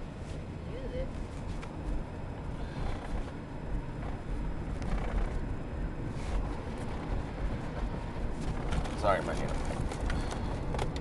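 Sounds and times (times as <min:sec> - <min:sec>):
car road and engine rumble: 0:00.0 - 0:11.0
faint clicks and knocks: 0:06.3 - 0:11.0.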